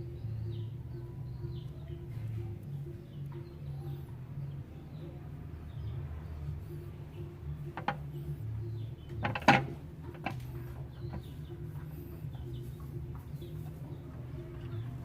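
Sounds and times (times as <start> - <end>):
steady low hum: 0.0 - 15.0
sharp knocks and clanks: 7.7 - 8.4, 9.1 - 11.5.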